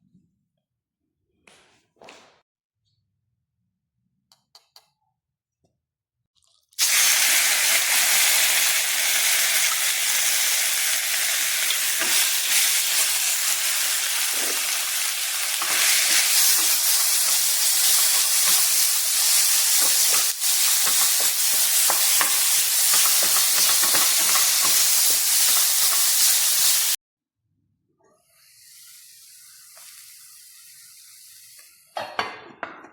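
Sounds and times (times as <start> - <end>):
food sizzling in a hot pan: 6.8 - 27.0, 28.6 - 31.9.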